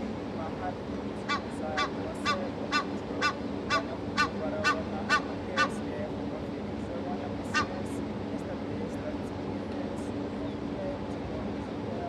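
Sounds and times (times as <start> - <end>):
bird honking calls: 1.2 - 5.8, 7.5 - 7.8.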